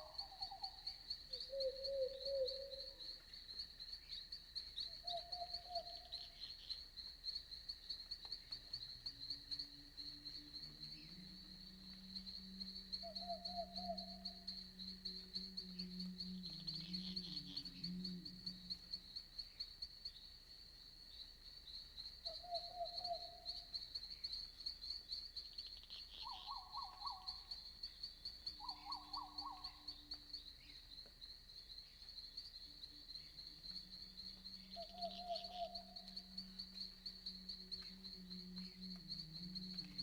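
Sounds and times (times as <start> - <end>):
night animal calls: 0.0 - 3.2, 13.0 - 18.9, 22.3 - 23.6, 26.1 - 27.4, 28.6 - 29.9, 33.7 - 40.0
insects trilling: 0.0 - 40.0.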